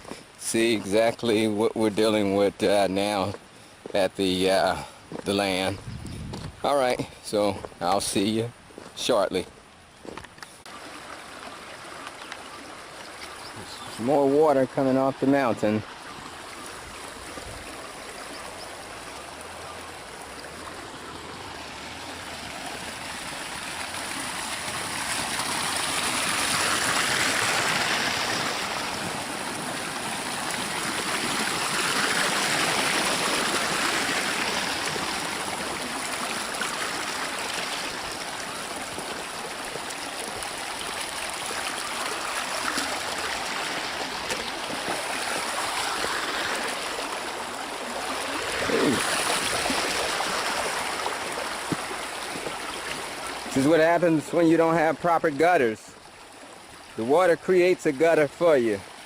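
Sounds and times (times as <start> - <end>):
water rushing in a stream: 8.2 - 59.0.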